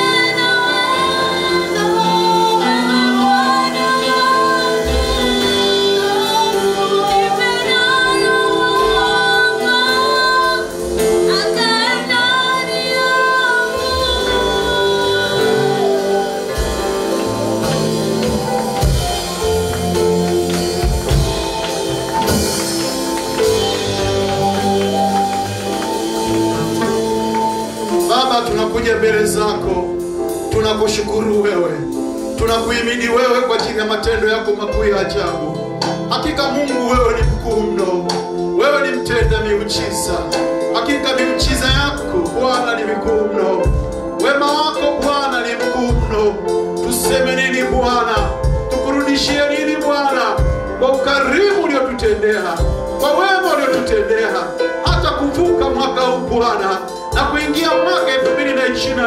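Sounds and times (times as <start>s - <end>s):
voices singing gospel: 0.0s - 29.1s
bass notes: 0.0s - 59.0s
sustained keyboard chords: 0.0s - 59.0s.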